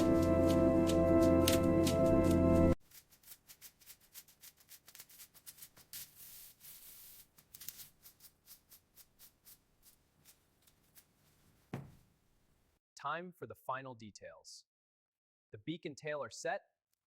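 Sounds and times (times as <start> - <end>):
matchsticks clicking: 0.9 - 2.0, 2.9 - 11.1
soft scraping rustle: 2.8 - 11.7.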